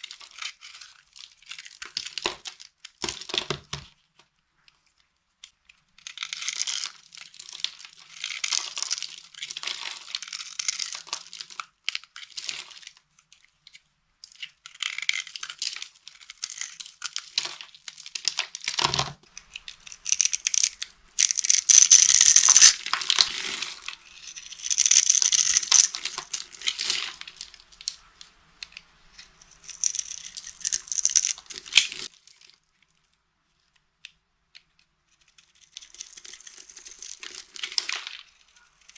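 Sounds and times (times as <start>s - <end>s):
dry soap crunching: 19.4s - 28.0s, 28.7s - 32.1s.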